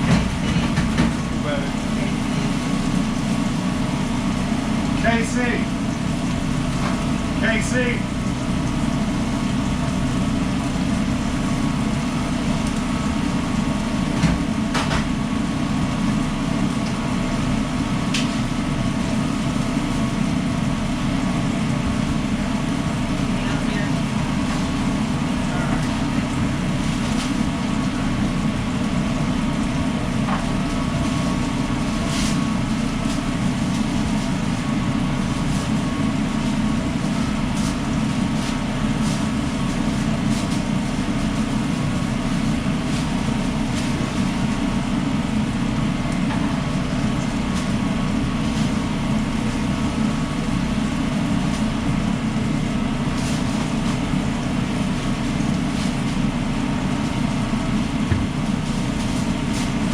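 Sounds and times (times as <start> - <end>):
kitchen work clicks and clatters: 0.0 - 1.3
loud machinery drone: 0.0 - 59.9.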